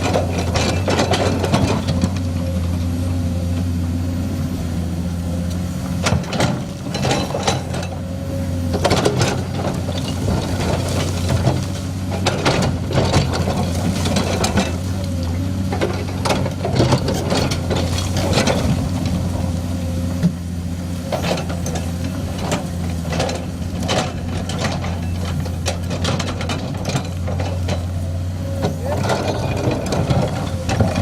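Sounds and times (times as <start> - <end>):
excavator diesel engine running: 0.0 - 31.0
rocks clacking and rattling: 8.8 - 19.5, 21.0 - 28.0, 28.6 - 31.0.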